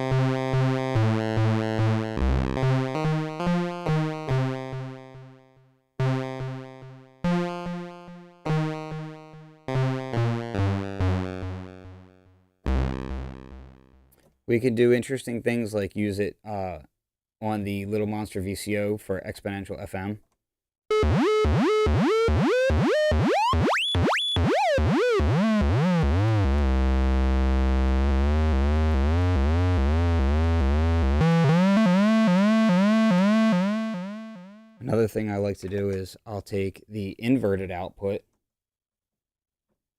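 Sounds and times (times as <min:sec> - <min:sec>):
square-wave synth playing short notes: 0:12.7 - 0:13.8, 0:20.9 - 0:34.8.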